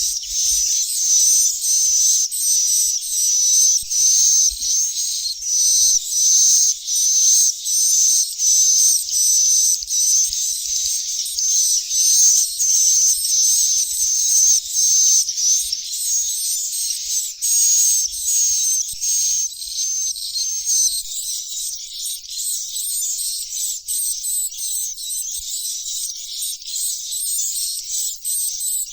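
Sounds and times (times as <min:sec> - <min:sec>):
bird chicks chirping shrilly: 0:00.0 - 0:19.4.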